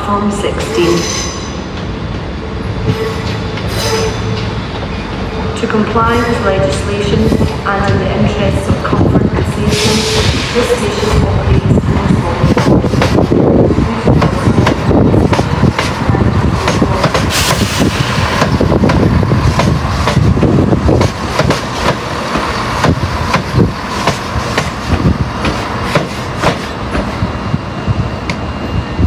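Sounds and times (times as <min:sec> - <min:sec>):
train rumble: 0:00.0 - 0:29.0
train wheels clicking over joints: 0:12.4 - 0:27.2.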